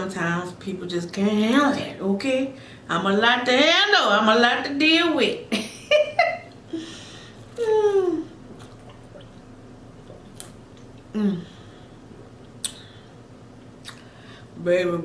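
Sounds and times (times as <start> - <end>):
mouth sounds of eating: 13.8 - 14.2.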